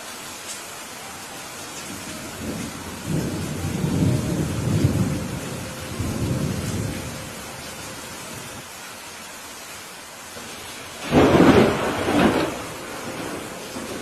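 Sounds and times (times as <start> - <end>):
steady rain: 0.0 - 14.0
thunder rolling: 1.9 - 7.4, 11.0 - 14.0.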